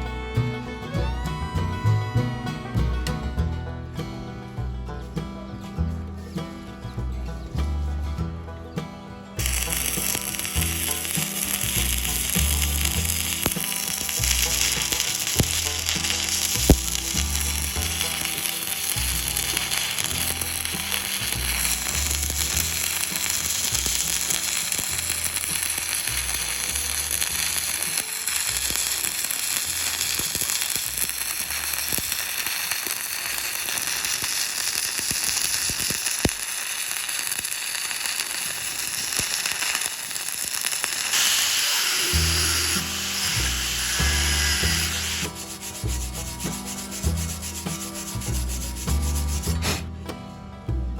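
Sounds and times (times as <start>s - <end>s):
background music: 0.0s - 34.8s, 39.4s - 50.9s
welding arc crackling: 9.4s - 49.8s.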